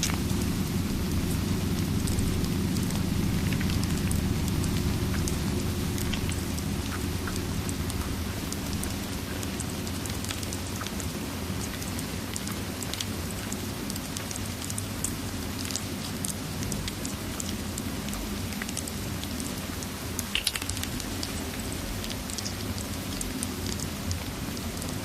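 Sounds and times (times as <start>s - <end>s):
fireplace crackling: 0.0s - 11.8s
low rumble: 0.0s - 11.9s
steady rain: 0.0s - 25.0s.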